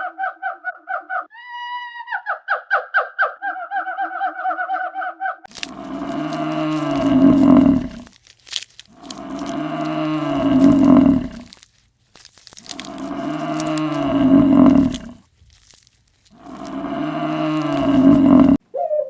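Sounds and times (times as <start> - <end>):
cow mooing: 5.6 - 8.1, 9.0 - 11.6, 12.7 - 15.2, 16.4 - 18.6.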